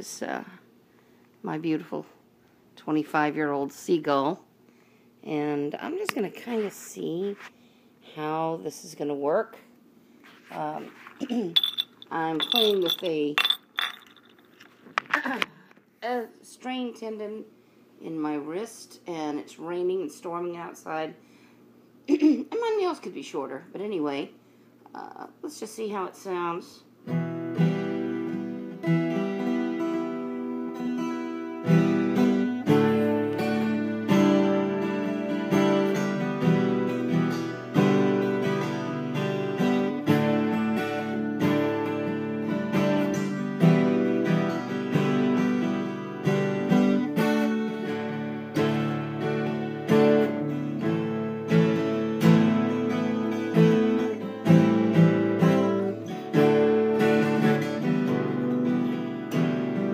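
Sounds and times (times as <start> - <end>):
acoustic guitar strumming chords: 27.1 - 59.9.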